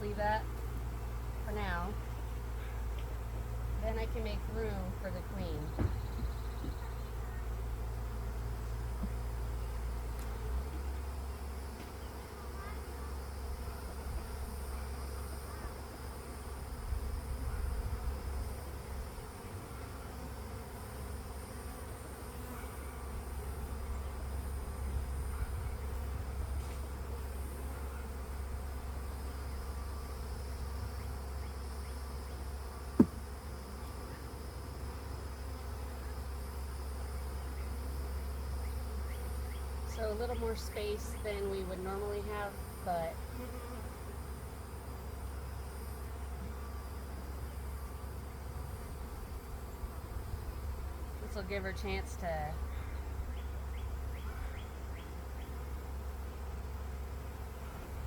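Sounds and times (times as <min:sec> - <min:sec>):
bees buzzing: 0:00.0 - 0:58.0
sharp knock: 0:33.0 - 0:33.2.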